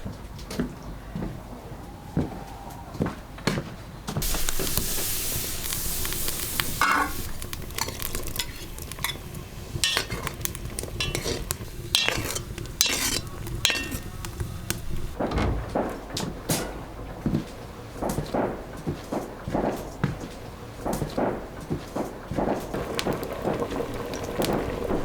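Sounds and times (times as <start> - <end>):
food sizzling in hot oil: 4.2 - 15.2, 22.7 - 25.0
utensil scraping and clinking pan: 5.7 - 15.2.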